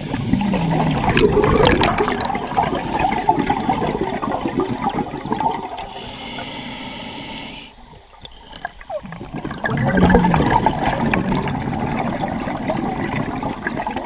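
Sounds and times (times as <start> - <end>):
regulator inhale hiss: 0.0 - 1.0, 5.8 - 8.6
exhaled bubbles gurgling: 0.0 - 14.0.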